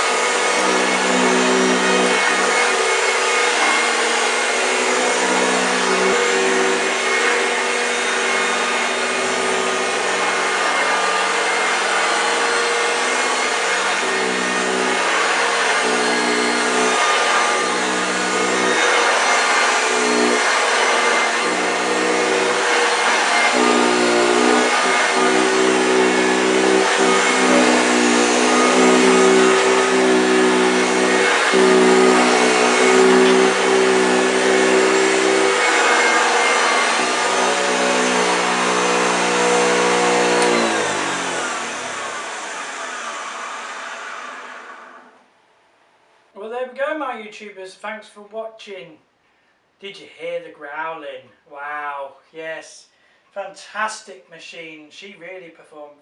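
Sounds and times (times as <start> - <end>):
vacuum cleaner on carpet: 0.0 - 45.1.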